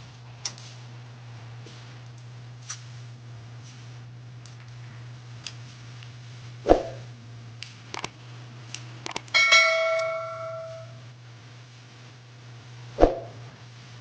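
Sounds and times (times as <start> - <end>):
low electrical hum: 0.0 - 14.0
sharp knock: 6.7 - 7.0
small clicks: 7.6 - 9.4
ringing clink of tableware: 9.4 - 11.0.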